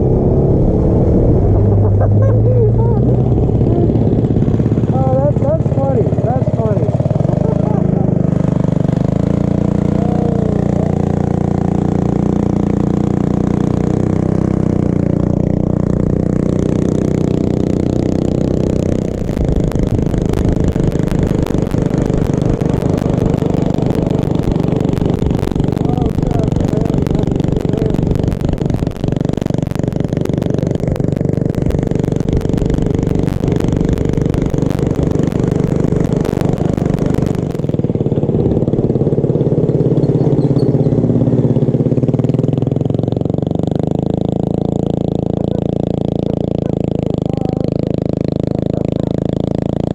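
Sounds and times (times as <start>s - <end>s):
mini bike engine running: 0.0s - 49.9s
fast irregular rattling clatter: 3.6s - 9.8s, 15.4s - 41.3s.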